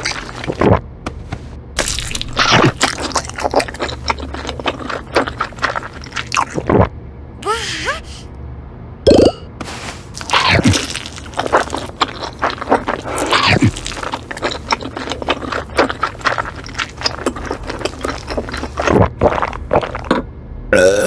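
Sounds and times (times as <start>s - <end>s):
chewing pizza: 0.0s - 0.8s, 1.8s - 6.9s, 10.2s - 20.2s.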